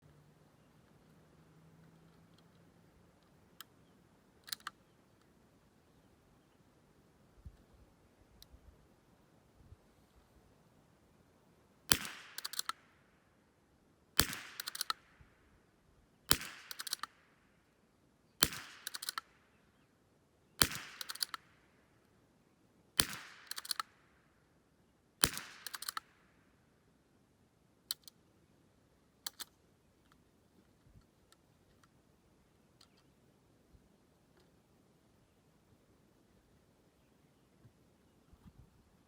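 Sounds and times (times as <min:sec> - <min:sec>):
rifle action clicks: 0:04.4 - 0:05.3, 0:11.9 - 0:12.8, 0:14.2 - 0:15.0, 0:16.3 - 0:17.2, 0:18.4 - 0:19.3, 0:20.6 - 0:21.5, 0:23.0 - 0:23.9, 0:25.2 - 0:26.2, 0:27.9 - 0:28.2, 0:29.2 - 0:30.2
rifle shots: 0:11.9 - 0:12.8, 0:14.2 - 0:15.0, 0:16.3 - 0:17.2, 0:18.4 - 0:19.3, 0:20.6 - 0:21.5, 0:23.0 - 0:23.9, 0:25.2 - 0:26.1.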